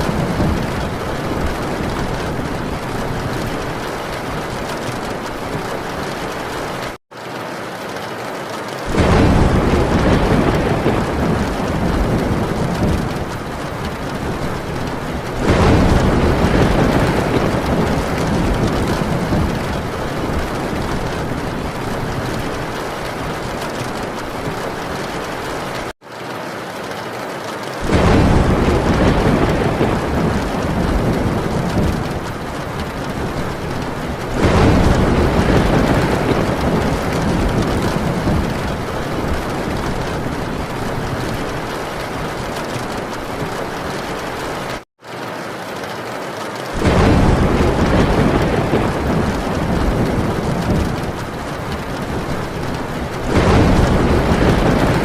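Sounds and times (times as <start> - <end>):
rolling thunder: 0.0 - 7.0, 8.9 - 25.9, 27.8 - 44.8, 46.8 - 55.0
heavy rain on a tin roof: 0.0 - 55.0.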